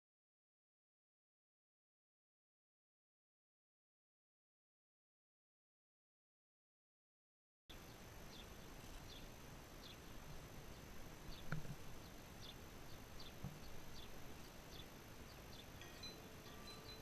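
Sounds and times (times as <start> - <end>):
small birds chirping: 7.7 - 17.0
steady hiss: 7.7 - 17.0.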